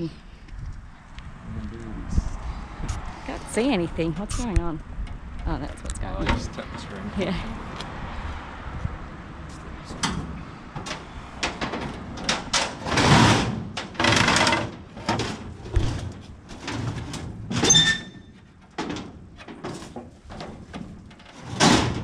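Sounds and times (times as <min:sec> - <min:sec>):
knocks scrapes and shuffling: 0:09.5 - 0:22.0.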